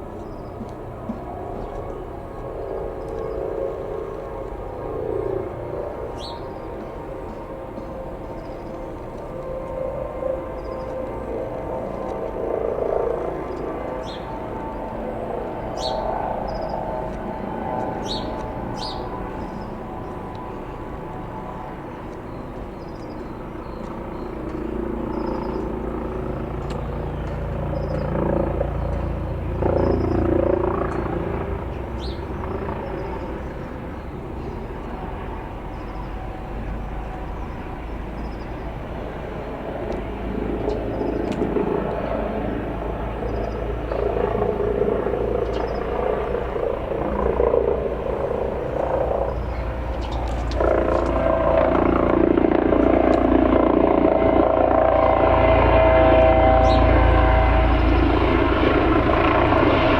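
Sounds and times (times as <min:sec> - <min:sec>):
helicopter flying past: 0:00.0 - 0:59.9
small birds chirping: 0:13.5 - 0:14.9, 0:15.7 - 0:20.2, 0:31.9 - 0:35.1, 0:45.4 - 0:46.0, 0:48.4 - 0:50.6.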